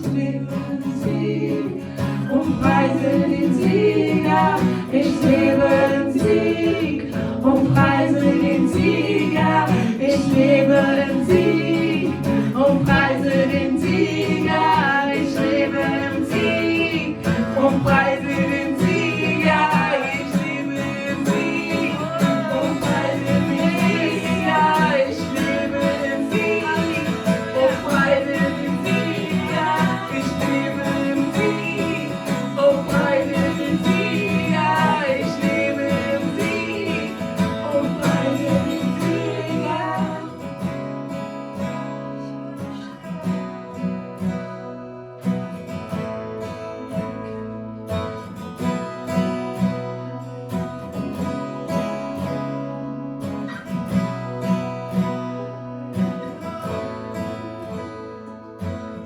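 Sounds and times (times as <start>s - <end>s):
acoustic guitar strumming: 0.0s - 59.0s
worship band music: 7.4s - 40.2s.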